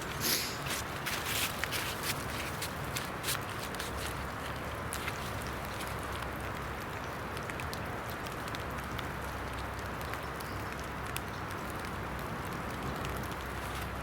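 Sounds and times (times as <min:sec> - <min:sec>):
rain hissing: 0:00.0 - 0:07.4.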